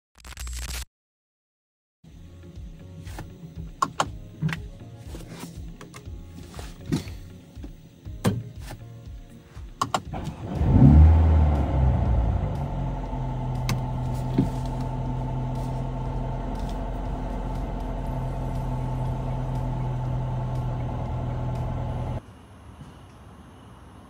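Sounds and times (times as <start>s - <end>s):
car engine starting and idling: 9.8s - 22.2s.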